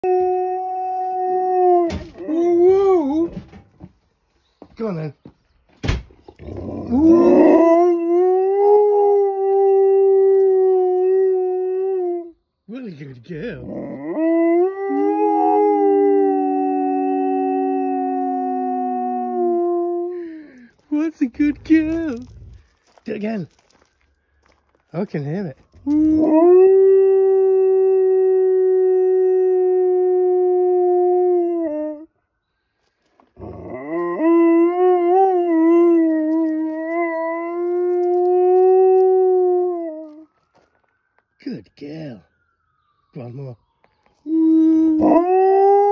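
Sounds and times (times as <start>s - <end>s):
dog howling: 6.4s - 12.3s, 13.6s - 20.1s, 25.8s - 32.0s, 33.4s - 40.3s, 44.3s - 45.9s.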